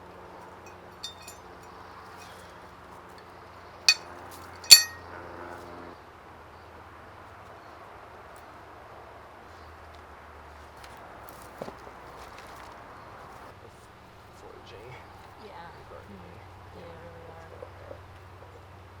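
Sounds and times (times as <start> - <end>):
hard objects clinking: 1.0 - 1.4, 4.6 - 5.0.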